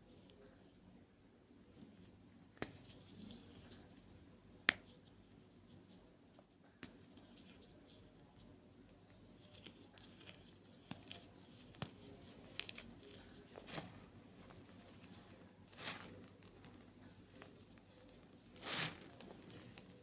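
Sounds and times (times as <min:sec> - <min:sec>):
chalk crunching: 0:09.0 - 0:20.0.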